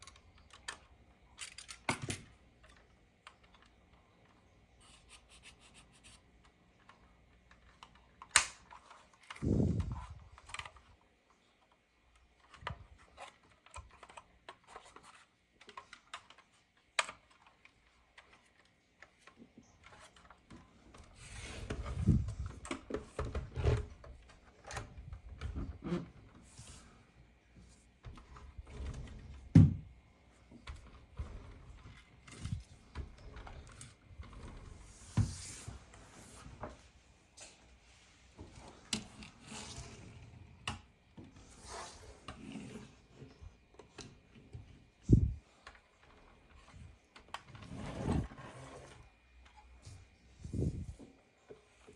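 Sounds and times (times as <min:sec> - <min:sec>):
model car and packaging handled: 0:06.2 - 0:26.9.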